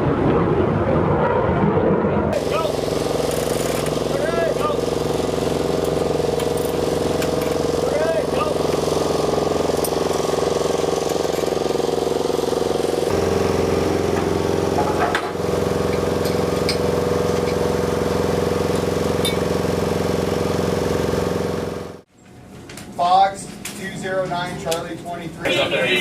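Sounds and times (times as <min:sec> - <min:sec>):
engine idling: 0:02.4 - 0:22.0.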